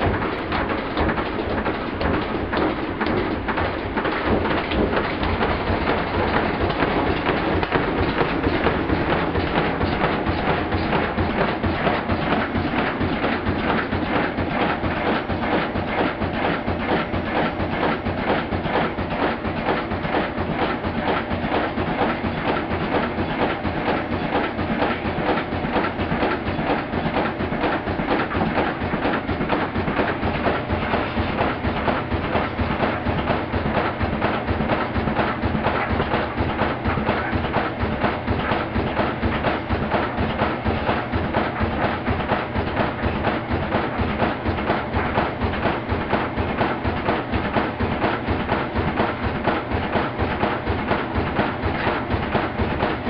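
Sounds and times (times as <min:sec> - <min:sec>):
washing machine knocking: 0:00.0 - 0:53.0.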